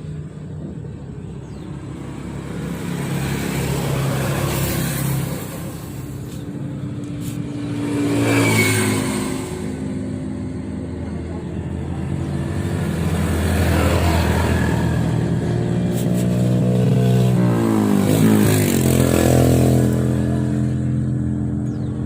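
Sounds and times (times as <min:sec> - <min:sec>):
motor vehicle engine running: 0:19.8 - 0:22.0.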